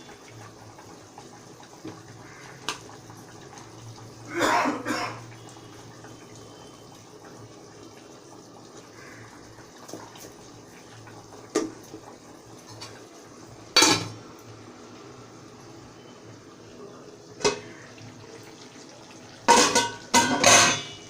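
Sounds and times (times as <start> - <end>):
chicken cooking hiss: 0.0 - 20.2
metal utensils knocking on pot: 13.8 - 14.2, 19.5 - 21.0.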